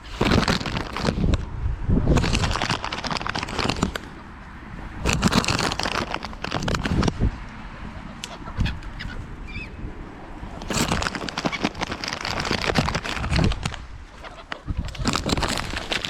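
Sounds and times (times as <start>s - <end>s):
gulls and water birds squawking: 7.6s - 9.9s, 14.0s - 15.1s.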